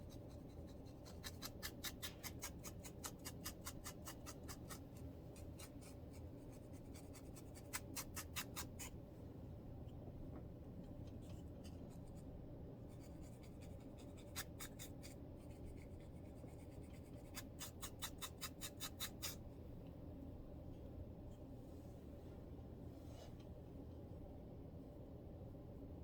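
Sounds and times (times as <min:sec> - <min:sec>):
fingers scratching scalp: 0:00.0 - 0:09.0, 0:12.9 - 0:19.4
low steady hum: 0:00.0 - 0:26.0.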